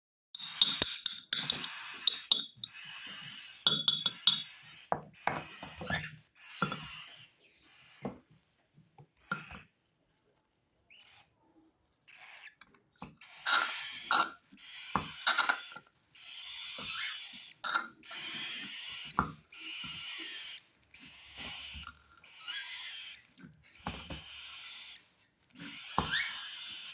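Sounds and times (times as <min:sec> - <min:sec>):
bird chicks begging calls: 0:01.5 - 0:08.0, 0:13.2 - 0:26.9.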